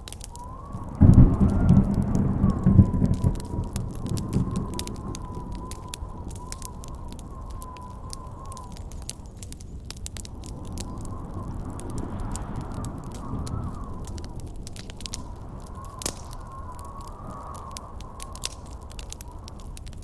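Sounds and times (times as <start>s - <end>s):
campfire crackling and popping: 0.0s - 20.0s
low rumble of thunder: 0.0s - 20.0s
wind howling: 0.0s - 20.0s.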